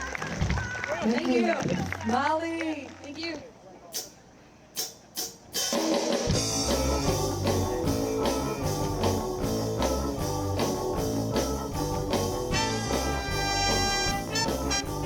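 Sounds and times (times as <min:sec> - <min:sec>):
drums: 0:00.0 - 0:01.0, 0:03.9 - 0:15.0
bass guitar: 0:06.3 - 0:15.0
electric guitar: 0:06.3 - 0:15.0
horns playing held notes: 0:06.4 - 0:15.0.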